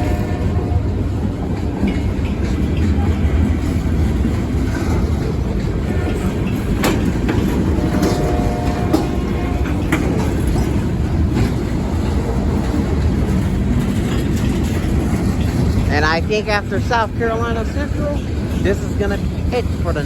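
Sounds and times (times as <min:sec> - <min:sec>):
freight cars rumbling: 0:00.0 - 0:20.0
wheels clacking over rail joints: 0:00.0 - 0:20.0.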